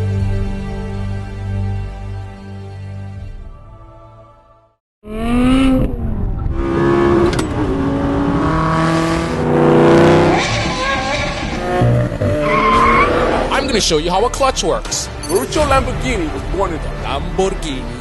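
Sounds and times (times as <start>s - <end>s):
car engine revving hard: 5.1s - 13.5s
soft background music: 13.5s - 18.0s.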